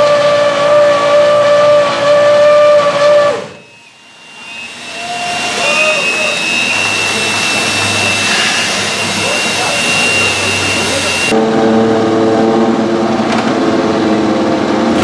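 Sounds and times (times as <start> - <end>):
hiss: 3.8 - 11.3
racing car engine revving: 14.3 - 15.0.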